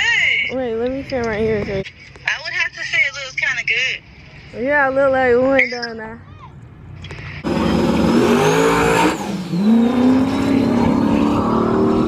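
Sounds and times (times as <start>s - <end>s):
car engine accelerating hard: 7.4s - 12.0s.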